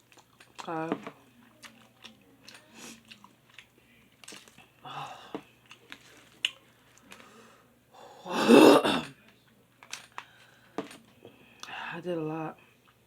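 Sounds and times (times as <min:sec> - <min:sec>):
woman clearing her throat: 0:08.3 - 0:09.1.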